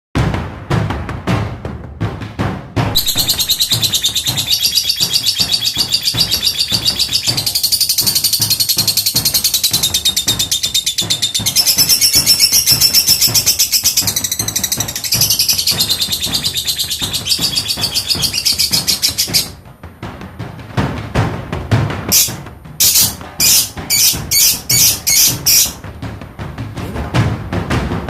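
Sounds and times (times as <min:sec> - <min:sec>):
low thumps: 0:00.2 - 0:28.0
lovebird rapid high chattering: 0:03.0 - 0:19.6, 0:22.1 - 0:25.8.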